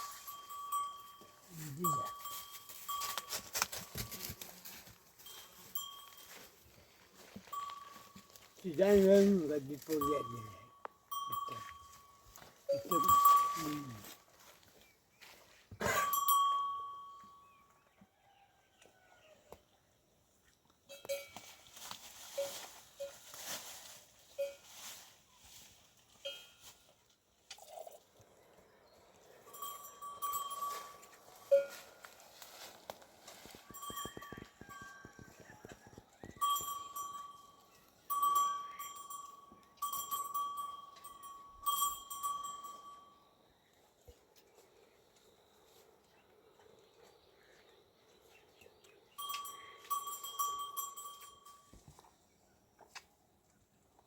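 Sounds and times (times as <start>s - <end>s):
rapid jingling: 0.0s - 6.7s, 7.4s - 14.1s, 29.3s - 32.1s, 33.4s - 43.2s, 49.1s - 51.7s
livestock bells clanking: 0.0s - 14.2s, 15.8s - 17.6s, 20.9s - 21.5s, 26.2s - 26.7s, 29.2s - 32.7s, 33.3s - 43.3s, 49.1s - 51.8s.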